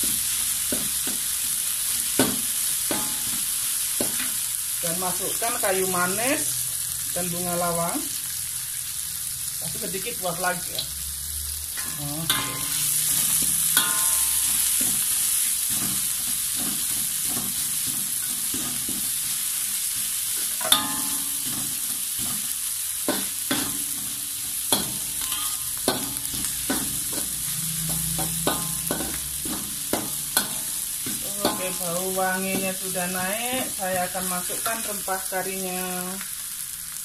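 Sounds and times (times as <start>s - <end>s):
spices sizzling in oil: 0.0s - 37.0s
metal spatula scraping wok: 11.7s - 22.5s, 23.1s - 35.0s.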